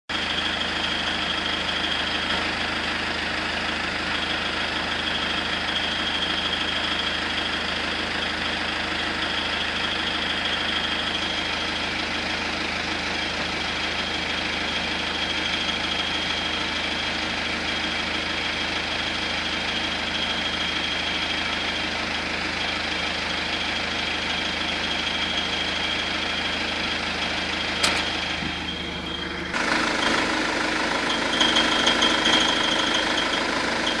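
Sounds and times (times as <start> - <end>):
diesel engine idling: 0.1 - 34.0
high-pitched chirping from engine: 4.0 - 12.2, 24.3 - 34.0
sharp click: 27.8 - 28.2.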